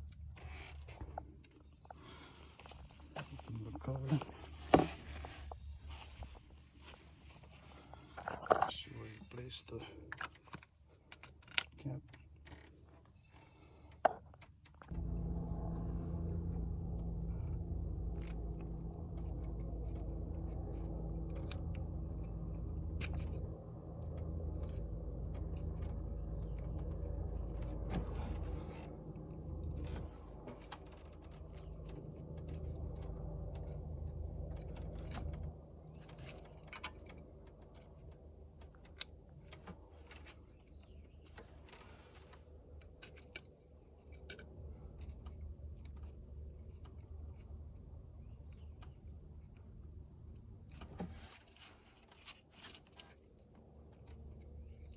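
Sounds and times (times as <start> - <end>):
mechanical hum: 14.8 - 54.9.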